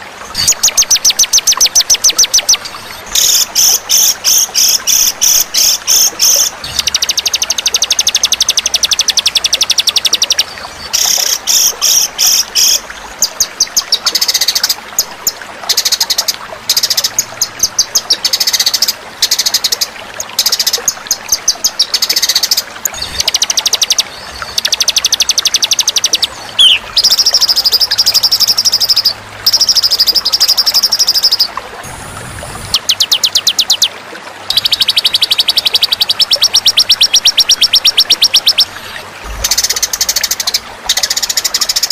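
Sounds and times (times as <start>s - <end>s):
songbird chattering trills: 26.0s - 27.7s.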